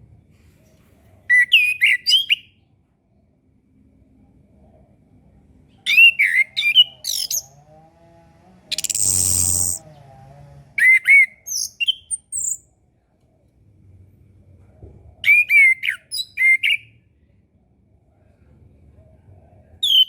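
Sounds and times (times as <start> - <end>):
bird singing whistled notes: 1.3 - 2.6, 5.9 - 7.5, 8.7 - 9.8, 10.8 - 12.7, 15.2 - 17.0
harsh hissing bird note: 8.7 - 9.8.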